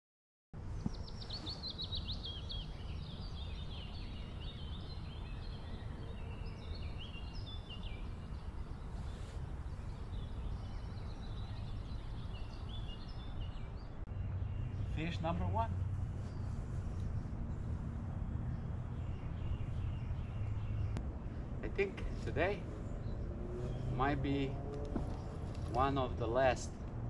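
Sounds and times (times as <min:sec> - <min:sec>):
songbirds chirping and trilling: 0:00.6 - 0:27.0
steady low rumble: 0:13.3 - 0:27.0.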